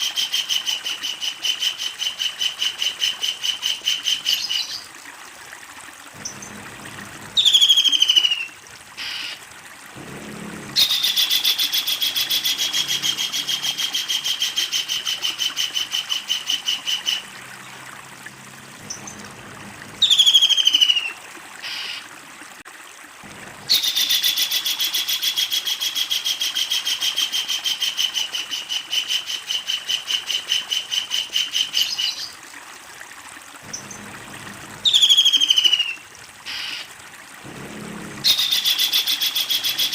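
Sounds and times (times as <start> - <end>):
kingfisher calling: 10.8 - 17.3, 38.2 - 39.9.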